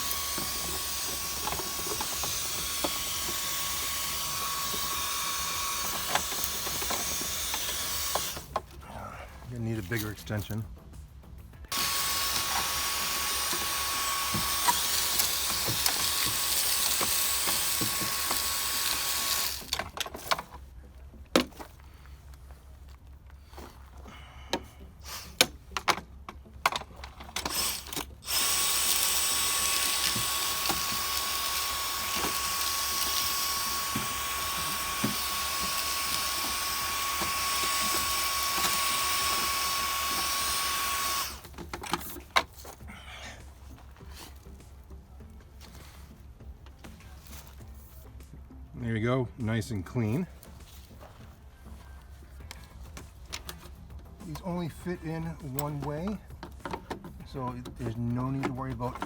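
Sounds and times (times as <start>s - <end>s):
handheld vacuum running: 0.0s - 8.6s, 11.7s - 19.9s, 27.3s - 42.1s.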